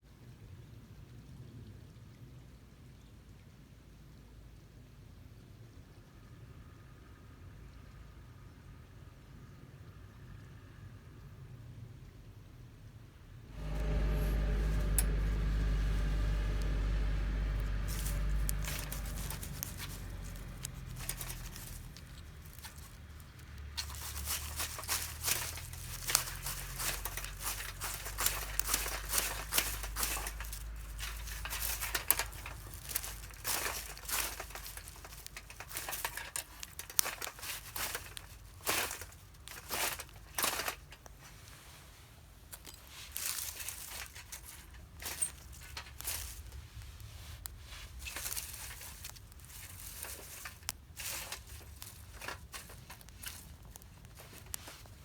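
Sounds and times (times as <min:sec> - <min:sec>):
low rumble: 0:13.4 - 0:35.3
crinkling and crackling: 0:13.4 - 0:55.0.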